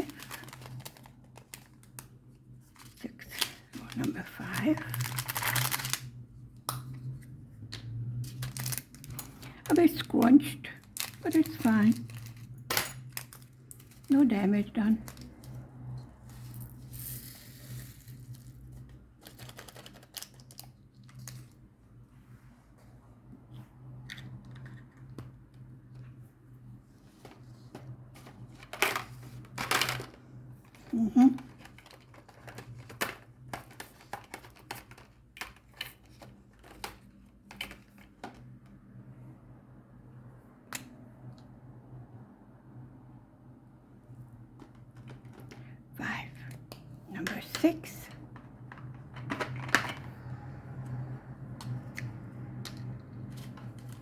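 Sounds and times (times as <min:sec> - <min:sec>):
plastic bags rustling: 0:00.0 - 0:06.2, 0:08.3 - 0:15.6.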